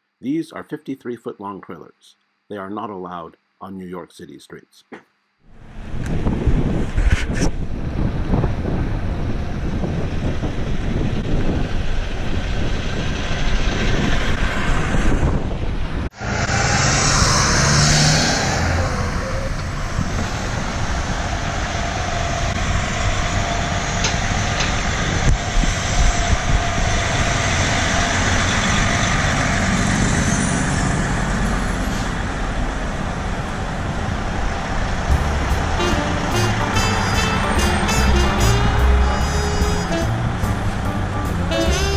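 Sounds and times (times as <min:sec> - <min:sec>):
city street traffic: 0:07.8 - 0:41.9
truck engine running: 0:32.2 - 0:41.9.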